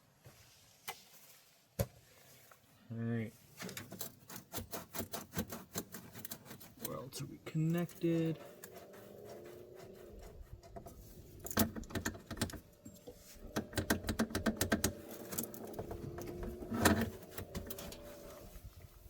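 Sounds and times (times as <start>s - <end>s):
hand tools clicking and clanking: 3.6s - 18.4s.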